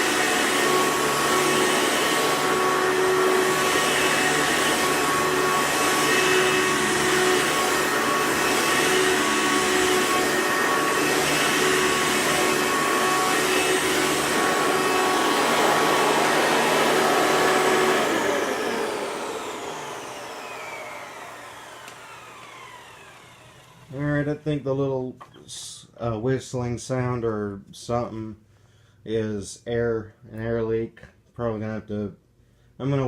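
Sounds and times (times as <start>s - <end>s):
motor winding down: 0.0s - 24.5s
vacuum cleaner running: 0.0s - 24.6s.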